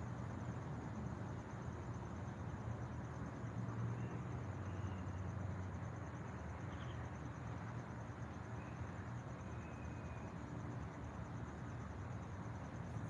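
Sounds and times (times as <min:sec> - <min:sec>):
high pulsing insect trill: 0:00.0 - 0:13.0
faint bird chirps: 0:06.7 - 0:07.0, 0:09.5 - 0:10.3.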